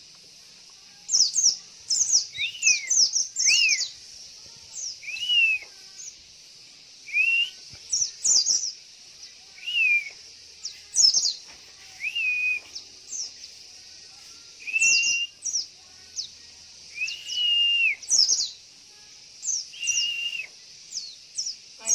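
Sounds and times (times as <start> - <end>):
steady high hiss: 0.0 - 21.9
bird whistled calls and chirps: 1.1 - 4.1, 4.7 - 6.2, 7.0 - 13.6, 14.6 - 18.6, 19.4 - 21.9.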